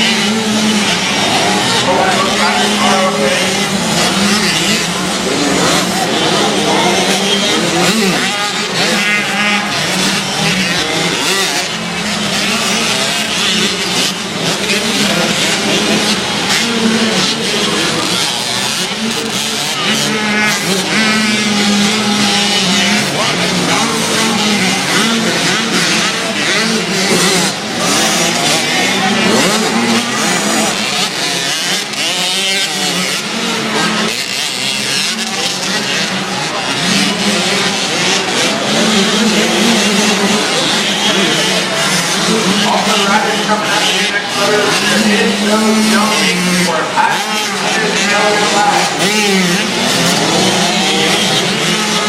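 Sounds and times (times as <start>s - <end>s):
dirt bike engines revving: 0.0s - 52.0s.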